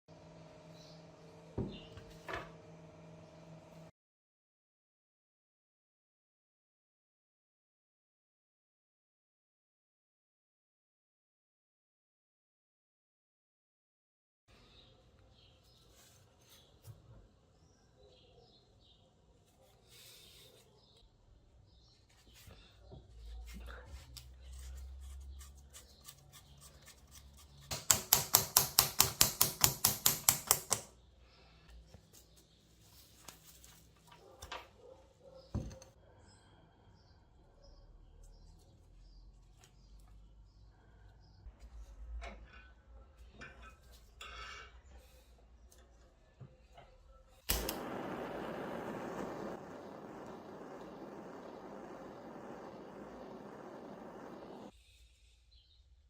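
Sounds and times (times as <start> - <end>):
snips or taps: 27.7 - 30.9
low hum: 47.6 - 54.7
loud steady rushing noise: 47.8 - 54.7.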